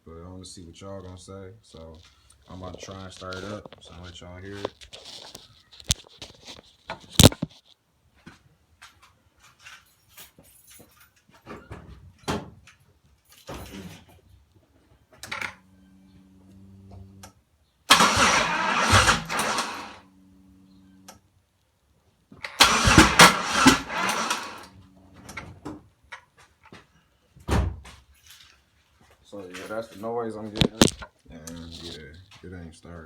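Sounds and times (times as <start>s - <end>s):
engine cranking on starter: 17.9s - 20.0s, 22.5s - 25.3s
clicks: 30.5s - 32.0s.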